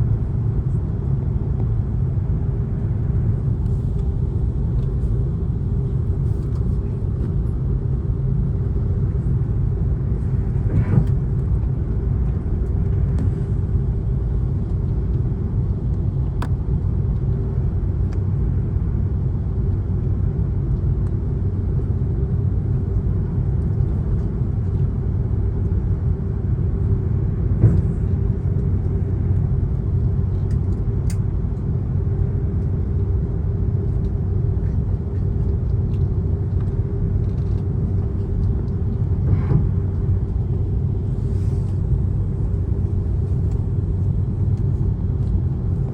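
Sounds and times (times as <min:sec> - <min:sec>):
jet engines droning in cabin: 0:00.0 - 0:45.9.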